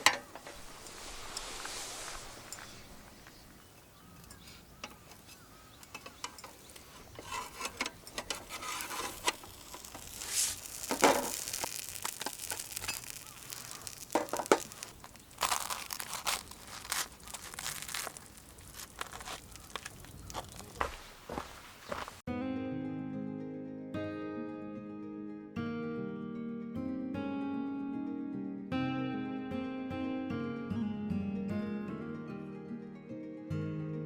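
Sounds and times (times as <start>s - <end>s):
crinkling and rustling: 0.0s - 3.8s, 4.5s - 22.2s.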